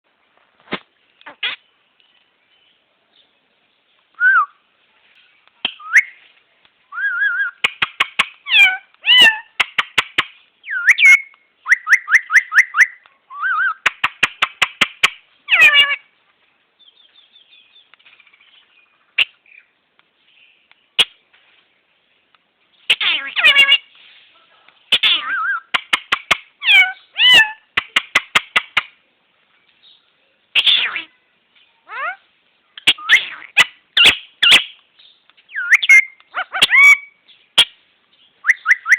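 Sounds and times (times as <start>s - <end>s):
parrot calling: 1.2s - 1.6s, 6.9s - 16.1s, 22.9s - 23.9s, 24.9s - 28.9s, 30.6s - 31.2s, 31.8s - 32.2s, 32.8s - 34.8s, 35.5s - 37.8s.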